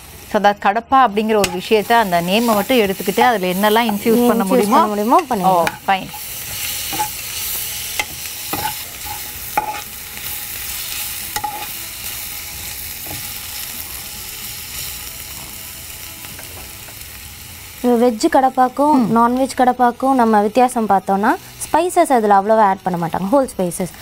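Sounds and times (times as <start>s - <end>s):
onions sizzling in oil: 0.0s - 24.0s
metal spoon scraping a pan: 1.2s - 14.1s.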